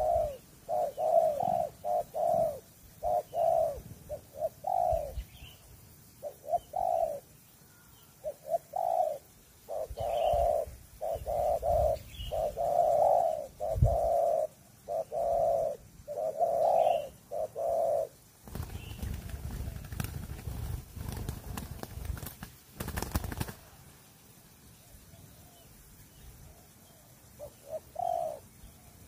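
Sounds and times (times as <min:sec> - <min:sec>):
dove cooing: 0:00.0 - 0:05.3, 0:06.2 - 0:07.3, 0:08.2 - 0:22.2, 0:26.5 - 0:29.0.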